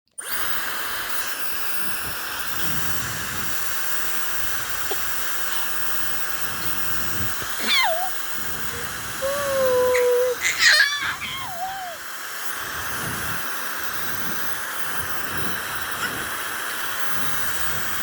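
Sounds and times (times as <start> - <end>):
hair dryer blowing: 0.2 - 18.0
animal call: 7.5 - 12.0.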